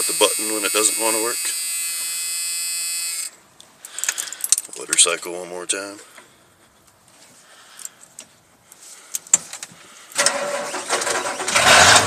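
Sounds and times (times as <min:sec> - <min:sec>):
diesel engine cranking and firing: 0:10.2 - 0:12.0.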